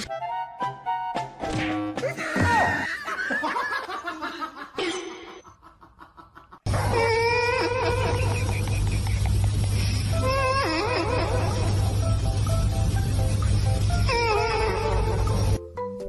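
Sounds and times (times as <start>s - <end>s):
people laughing: 2.0s - 9.8s.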